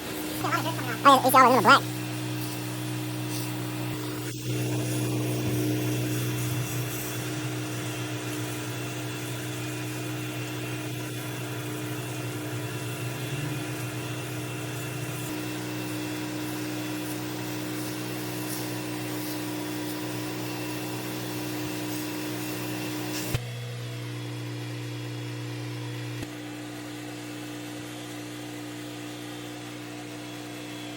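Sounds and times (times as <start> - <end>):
pressure washer engine hum: 0.0 - 23.4.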